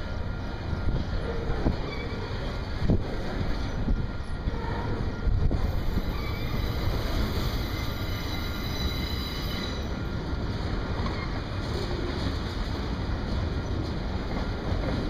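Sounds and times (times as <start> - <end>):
steel wheels rumbling on rail: 0.0 - 15.0
train cars clanking: 0.0 - 15.0
high wheel squeal: 5.6 - 10.0.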